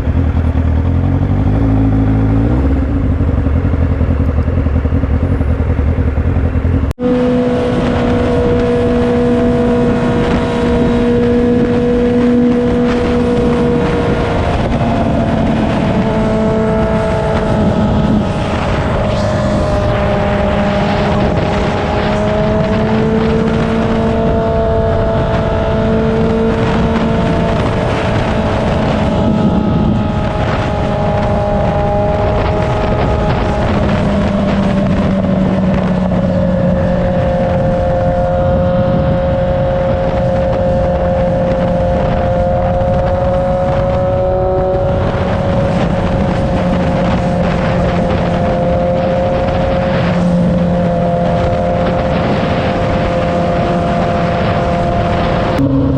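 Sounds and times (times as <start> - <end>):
motorcycle engine cruising: 0.0 - 55.9
wind noise: 0.0 - 55.9.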